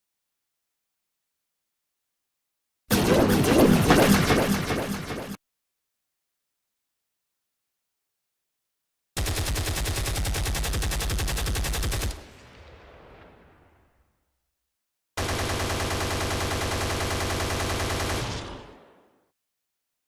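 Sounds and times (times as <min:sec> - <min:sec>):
automatic gunfire bursts: 0:09.2 - 0:12.2, 0:15.2 - 0:18.5.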